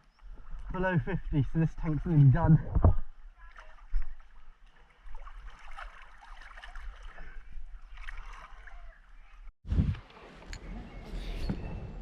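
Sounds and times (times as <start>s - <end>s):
water sloshing and gurgling: 0.0s - 9.5s
small splashy crackles: 3.5s - 9.5s.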